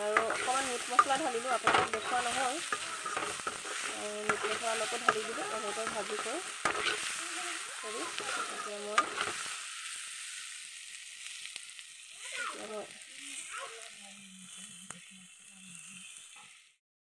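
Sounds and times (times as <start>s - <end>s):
ladle stirring in a pan: 0.0s - 11.9s
vegetables sizzling in oil: 0.0s - 16.8s.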